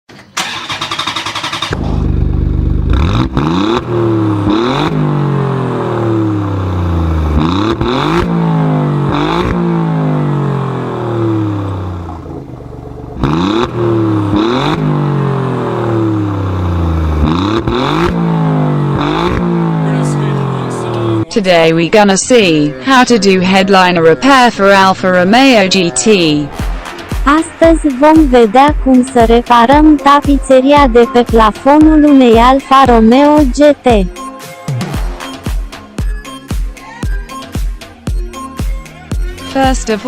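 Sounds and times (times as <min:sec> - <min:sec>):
car engine revving: 0:00.4 - 0:21.4, 0:26.4 - 0:33.7.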